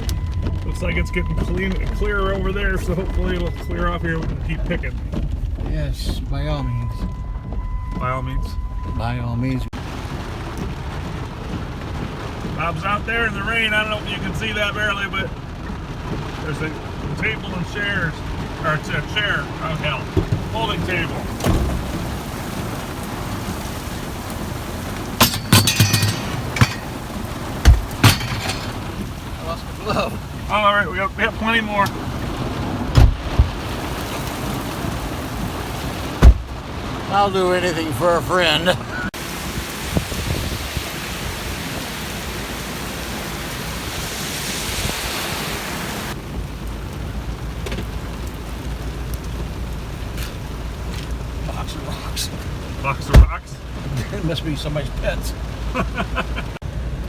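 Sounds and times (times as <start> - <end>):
rain hissing: 0.0 - 57.0
loud metallic clanks and knocks: 25.2 - 29.0.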